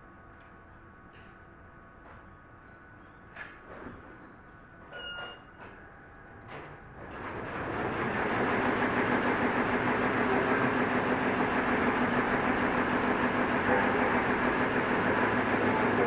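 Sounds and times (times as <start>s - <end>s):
embroidery machine humming: 7.5s - 16.0s.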